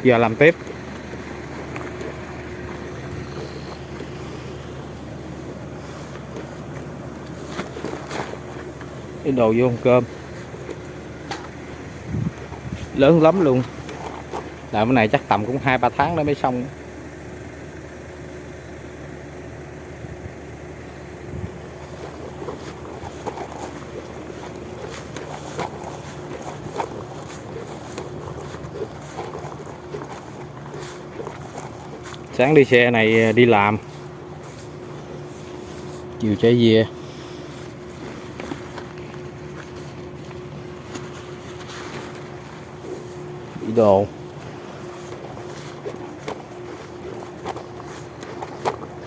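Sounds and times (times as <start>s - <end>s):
rustling: 0.0s - 15.9s, 20.9s - 49.0s
faint constant hum: 0.0s - 49.0s
low mechanical drone: 0.0s - 49.0s
wind on microphone: 11.9s - 13.0s.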